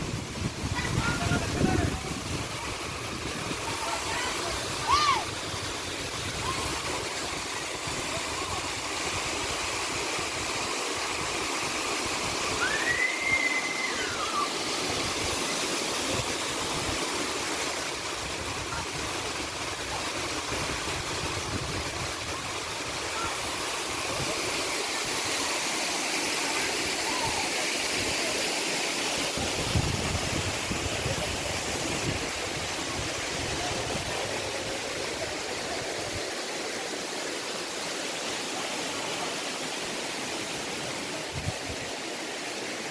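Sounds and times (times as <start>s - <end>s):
waterfall roaring: 0.0s - 42.9s
short rising whistle: 12.6s - 14.5s.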